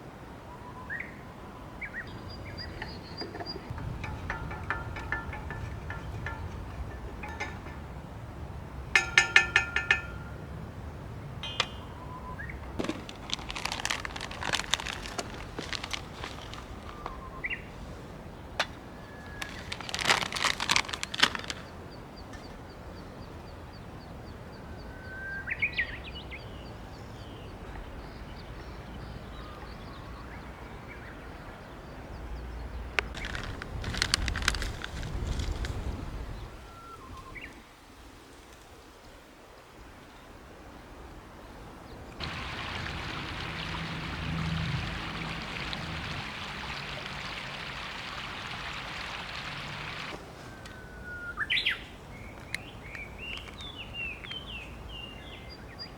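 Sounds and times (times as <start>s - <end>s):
low wind rumble: 0.0s - 38.3s, 39.1s - 55.9s
small birds calling: 0.5s - 8.1s, 11.4s - 37.6s, 41.9s - 55.9s.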